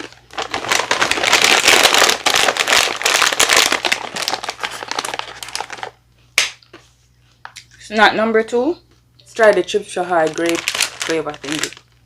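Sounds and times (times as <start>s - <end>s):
snack bag crinkling: 0.0s - 6.0s, 9.3s - 12.0s.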